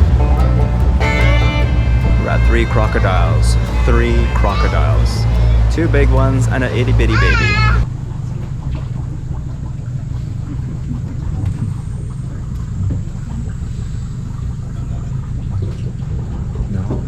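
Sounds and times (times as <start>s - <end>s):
boat motor humming: 0.0s - 10.6s.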